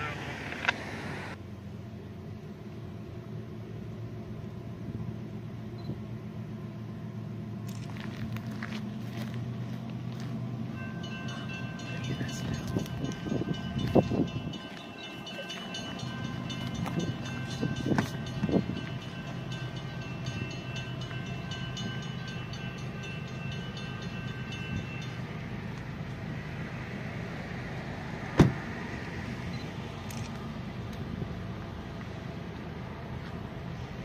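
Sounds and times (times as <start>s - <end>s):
train rumbling: 0.0s - 34.0s
high ringing tones: 10.7s - 25.8s.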